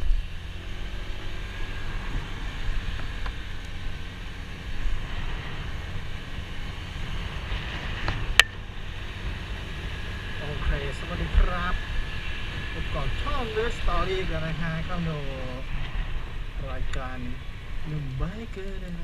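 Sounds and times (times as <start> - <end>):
motorcycle engine running: 0.0 - 14.9.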